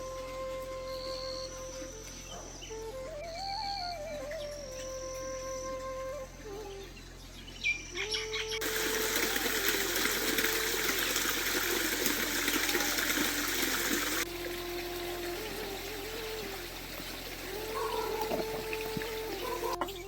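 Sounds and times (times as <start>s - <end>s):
faint melody: 0.0s - 20.0s
water rushing: 8.6s - 20.0s.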